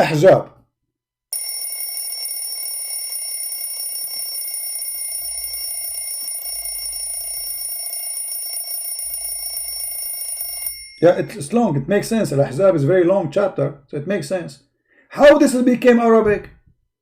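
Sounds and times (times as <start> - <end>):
alarm bell ringing: 1.3 - 11.8.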